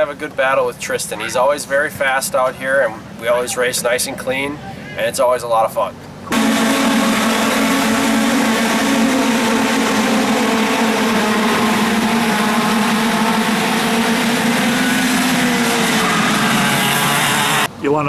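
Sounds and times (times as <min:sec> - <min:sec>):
kart engine at high revs: 0:06.3 - 0:17.7.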